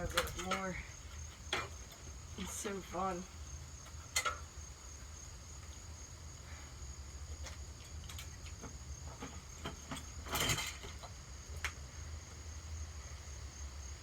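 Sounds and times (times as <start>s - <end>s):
crickets trilling: 0.0s - 14.0s
ceiling fan knocking and clattering: 8.2s - 11.8s.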